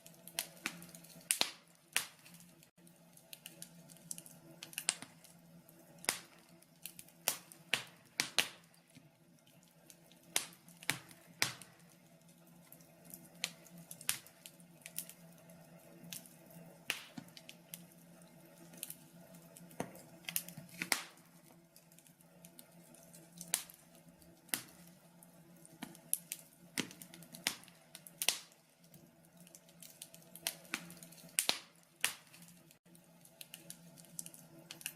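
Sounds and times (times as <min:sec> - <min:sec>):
wood fire crackling: 0:00.0 - 0:34.9.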